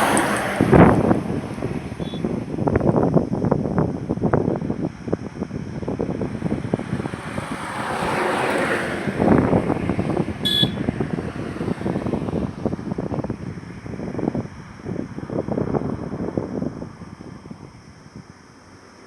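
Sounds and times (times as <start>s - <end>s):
vehicle passing close by: 0.0s - 2.8s, 5.9s - 16.3s
wind buffeting microphone: 0.0s - 18.9s
highway traffic: 0.0s - 19.0s
short high-pitched tone: 10.5s - 10.8s.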